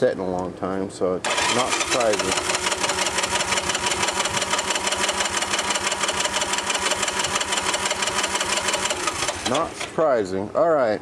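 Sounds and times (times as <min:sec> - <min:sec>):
starter motor whine: 0:01.2 - 0:10.0
engine cranking without firing: 0:01.2 - 0:10.1.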